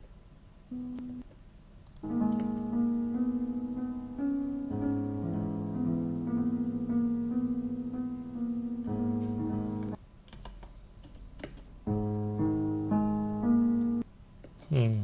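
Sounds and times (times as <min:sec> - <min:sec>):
slowed piano chords with delay: 0:02.0 - 0:10.0, 0:11.9 - 0:14.0
computer keyboard or mouse clicks: 0:10.2 - 0:11.7.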